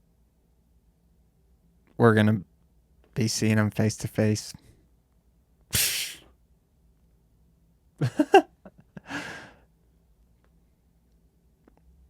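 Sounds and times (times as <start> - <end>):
man breathing: 5.7 - 6.3, 9.0 - 9.7.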